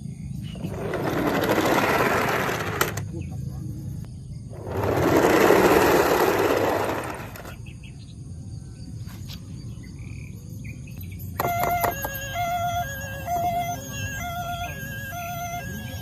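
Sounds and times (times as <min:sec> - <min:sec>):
toy electronic siren beeping: 0:11.3 - 0:16.0.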